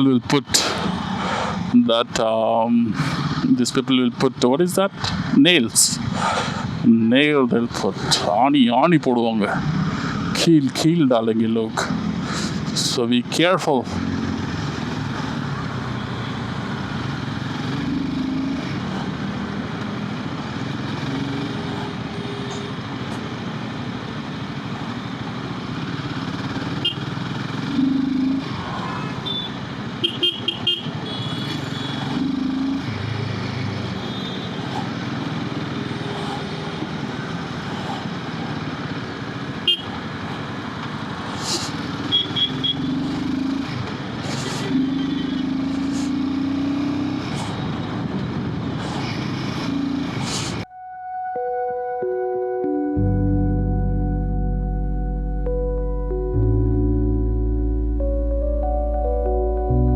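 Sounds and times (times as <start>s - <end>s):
road noise: 0.0s - 50.7s, 52.0s - 59.9s
motorcycle engine running: 19.2s - 28.4s.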